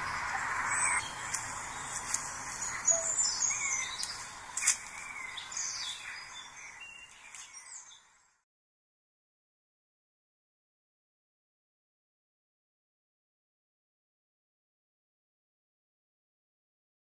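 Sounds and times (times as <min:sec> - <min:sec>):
birds chirping and calling: 0:00.0 - 0:08.3.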